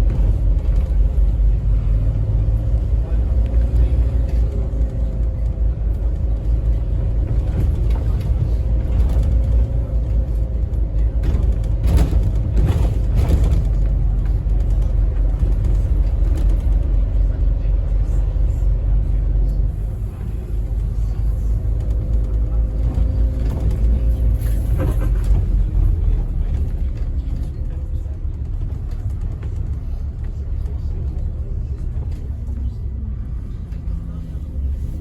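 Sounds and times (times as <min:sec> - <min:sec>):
bus engine low rumble: 0:00.0 - 0:35.0
rattles and knocks: 0:02.0 - 0:17.3.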